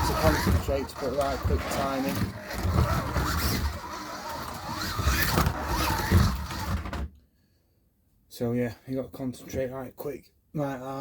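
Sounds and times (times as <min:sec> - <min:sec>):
slot car motor whine: 0:00.0 - 0:06.8.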